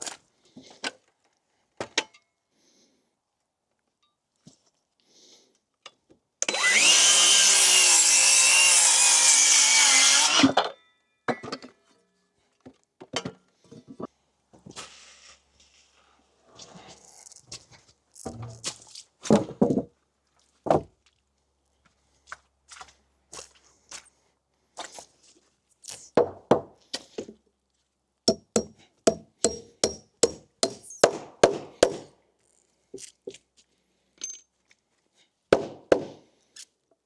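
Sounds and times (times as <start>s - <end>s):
hammer striking nails into wood: 28.3s - 32.1s, 35.6s - 36.2s.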